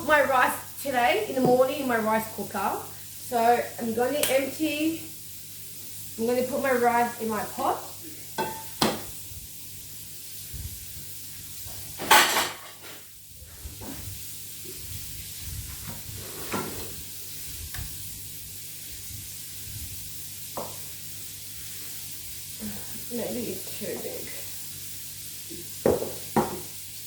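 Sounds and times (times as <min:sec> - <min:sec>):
meatballs sizzling in a pan: 0:00.0 - 0:27.0
utensil knocking and scraping pots: 0:01.3 - 0:01.8, 0:08.4 - 0:09.2, 0:15.9 - 0:17.0, 0:20.6 - 0:20.8, 0:25.5 - 0:26.7.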